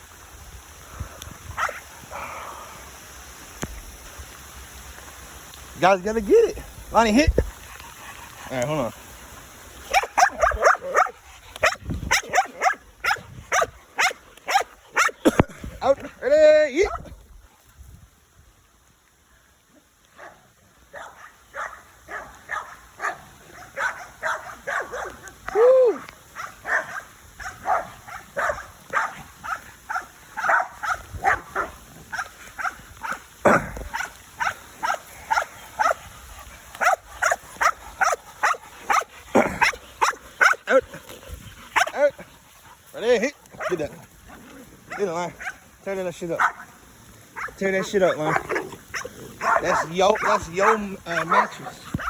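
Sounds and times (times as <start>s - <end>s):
dog barking excitedly: 9.8s - 15.5s, 20.2s - 25.4s, 26.4s - 36.0s, 36.8s - 40.9s, 41.7s - 42.3s, 43.5s - 43.9s, 44.9s - 45.6s, 46.3s - 46.7s, 47.3s - 52.0s.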